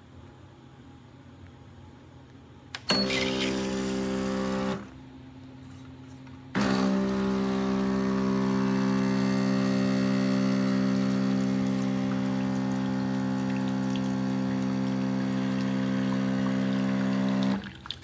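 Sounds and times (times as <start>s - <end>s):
espresso machine pump buzzing: 2.8s - 5.0s, 6.6s - 17.7s.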